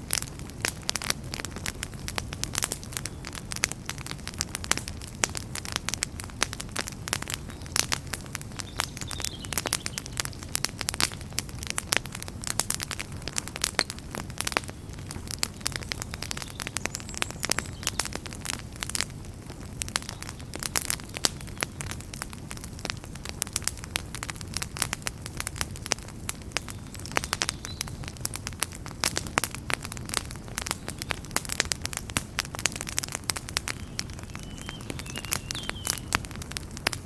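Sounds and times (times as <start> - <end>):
fire crackling and popping: 0.0 - 37.0
low rumble of flames: 0.0 - 37.0.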